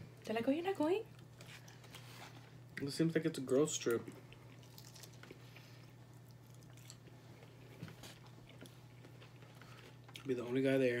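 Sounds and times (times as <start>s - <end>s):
people chewing: 3.9s - 10.5s.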